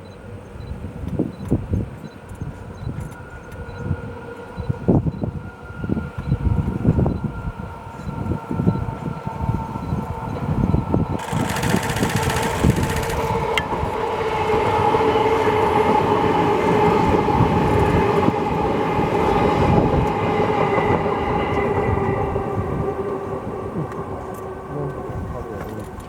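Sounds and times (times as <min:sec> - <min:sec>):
train motor whine: 0:08.1 - 0:23.3
train wheels clattering on rails: 0:11.2 - 0:21.9.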